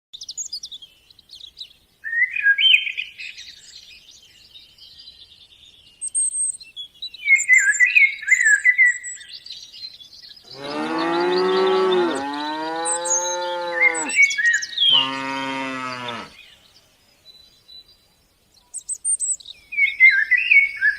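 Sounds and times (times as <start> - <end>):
small birds chirping: 0.2 - 20.9
cow mooing: 10.5 - 14.2, 14.9 - 16.4.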